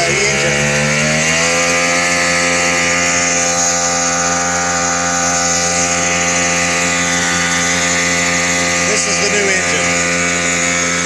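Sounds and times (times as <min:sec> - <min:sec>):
jet ski engine running: 0:00.0 - 0:11.0.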